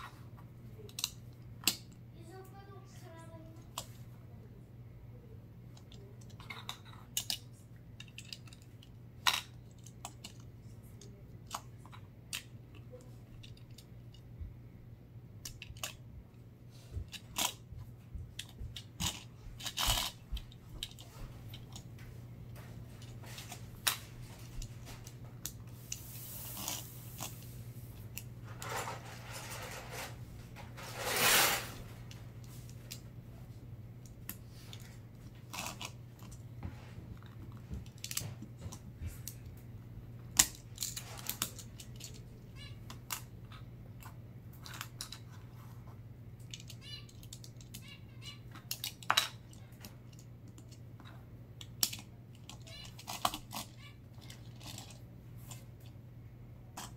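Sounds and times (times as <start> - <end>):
low steady hum: 0.0 - 56.9.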